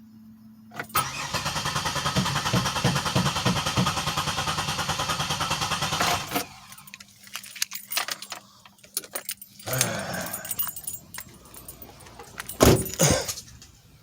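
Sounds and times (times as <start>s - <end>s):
starter cranking engine: 0.8s - 8.2s
keys jingling: 6.0s - 14.0s.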